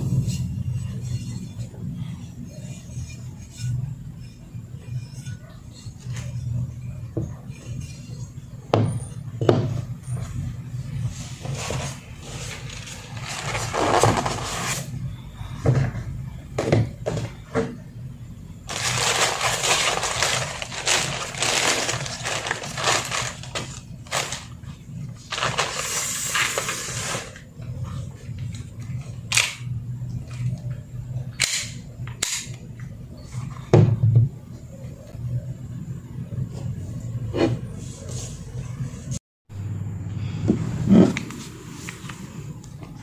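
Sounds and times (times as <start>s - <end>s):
steady low hum: 0.0s - 26.7s, 27.3s - 43.0s
scraping and rustling: 11.0s - 14.9s, 18.7s - 24.6s.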